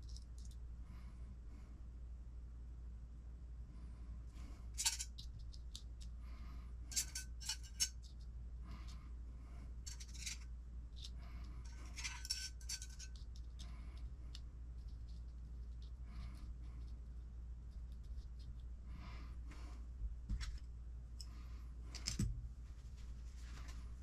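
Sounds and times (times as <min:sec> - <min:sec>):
small parts clicking and clinking: 0:00.0 - 0:00.6, 0:04.8 - 0:06.1, 0:06.9 - 0:08.3, 0:09.8 - 0:16.9
steady low hum: 0:00.0 - 0:24.0.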